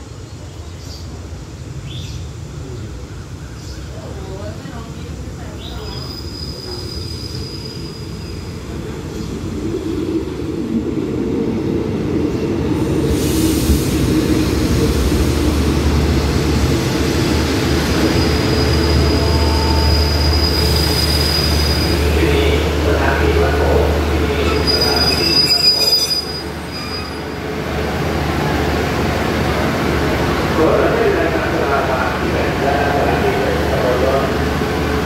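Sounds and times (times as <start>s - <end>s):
train rumbling: 0.0s - 35.0s
high brake squeal: 5.9s - 8.3s, 18.1s - 22.0s, 24.4s - 27.4s.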